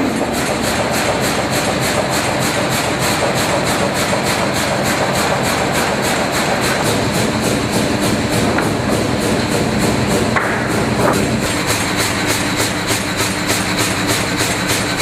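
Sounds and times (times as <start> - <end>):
firewood processor clattering: 0.0 - 15.0.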